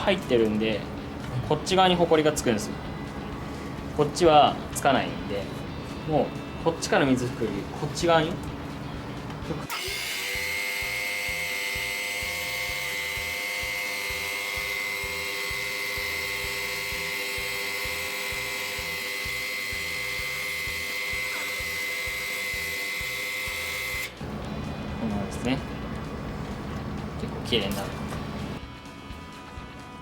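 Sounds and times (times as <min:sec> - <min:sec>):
pressure washer motor whine: 0:09.7 - 0:29.2.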